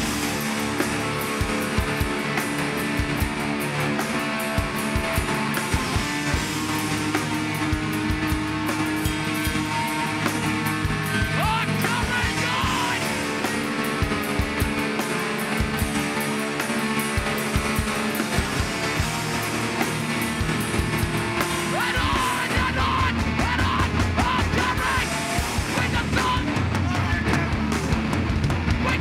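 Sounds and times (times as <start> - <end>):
bass guitar: 0.0 - 29.0
distorted electric guitars: 0.0 - 29.0
pounding drums: 0.0 - 29.0
shouted vocals: 11.0 - 13.2, 21.5 - 27.6.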